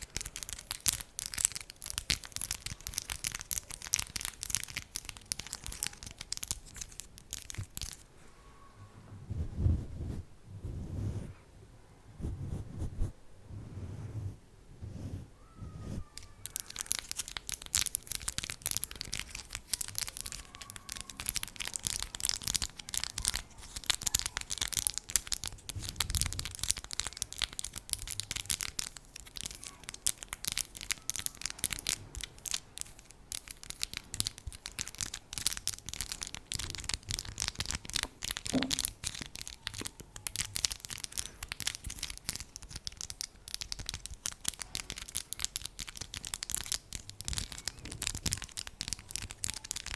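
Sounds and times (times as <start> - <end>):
light scratching: 12.2 - 24.5.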